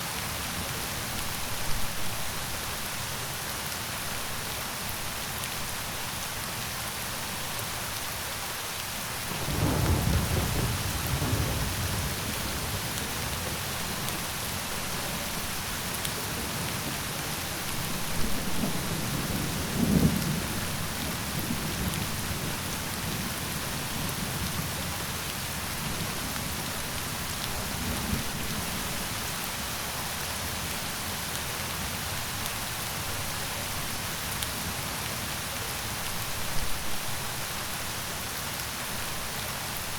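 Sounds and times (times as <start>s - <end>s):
steady rain falling: 0.0s - 39.9s
low rolling thunder: 9.3s - 13.9s.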